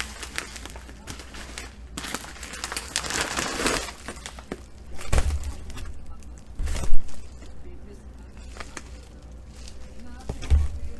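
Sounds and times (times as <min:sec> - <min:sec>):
packaging crinkling and rustling: 0:00.0 - 0:10.9.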